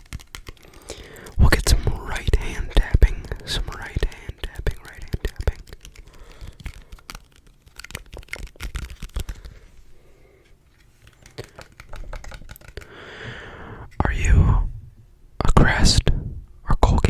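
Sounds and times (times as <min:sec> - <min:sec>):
fingertips tapping on surface: 0:00.0 - 0:09.6, 0:11.1 - 0:13.0.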